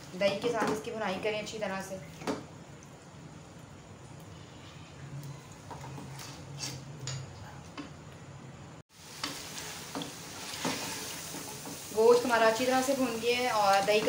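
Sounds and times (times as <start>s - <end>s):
meat sizzling in oil: 8.9s - 14.0s
wooden spatula scraping a pot: 9.2s - 12.0s.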